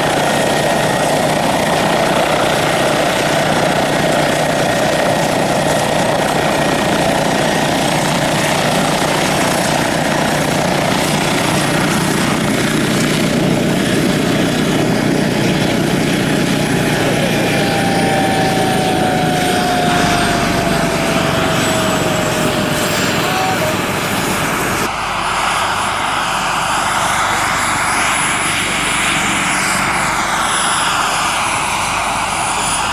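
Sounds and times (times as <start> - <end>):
model helicopter rotor and motor: 0.0 - 32.9
motor whine falling in pitch: 17.0 - 24.8.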